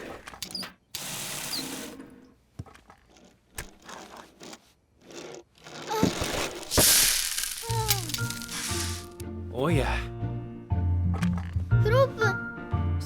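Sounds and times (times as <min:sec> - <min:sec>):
toy car whirring: 0:02.7 - 0:09.2
cereal spilling and scattering: 0:06.2 - 0:09.2.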